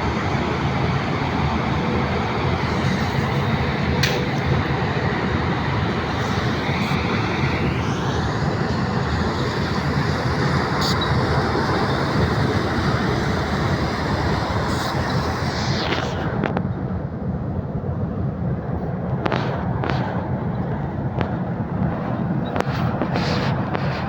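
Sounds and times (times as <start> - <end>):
faint high whine: 0.0 - 17.2
asphalt plant machinery running: 0.0 - 24.0.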